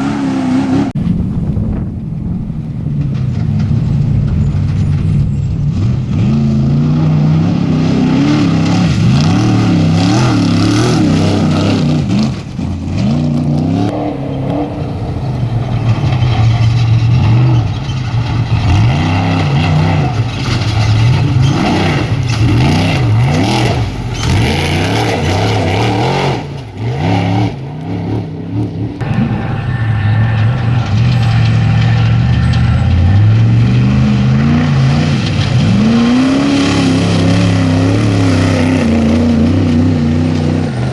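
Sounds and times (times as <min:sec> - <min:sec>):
engines revving: 0:13.6 - 0:40.9
steady low drone: 0:13.9 - 0:20.2, 0:28.9 - 0:36.4.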